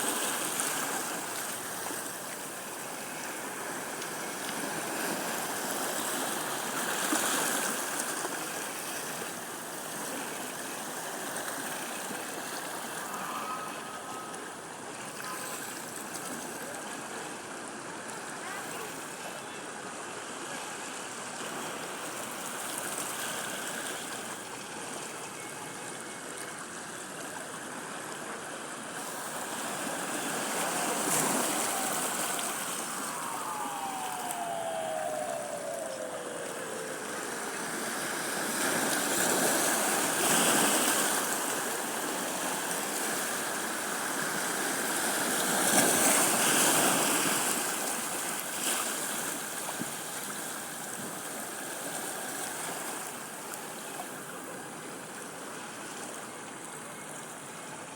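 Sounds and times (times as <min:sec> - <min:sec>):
sea waves washing onto beach: 0:00.0 - 0:55.2
faint tone sliding down in pitch: 0:29.2 - 0:40.4.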